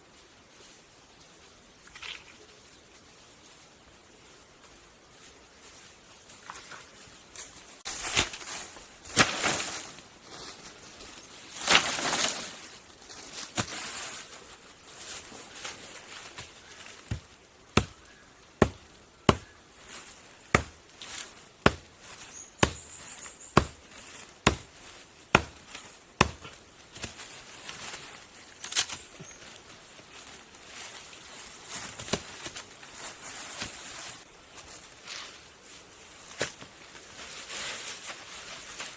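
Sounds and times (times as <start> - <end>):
rustling and scraping: 4.6 - 17.3, 19.8 - 38.9
axe chopping wood: 17.1 - 18.0, 18.6 - 19.5, 20.5 - 20.8, 21.6 - 21.9, 22.6 - 22.9, 23.6 - 23.8, 24.4 - 24.7, 25.3 - 27.1.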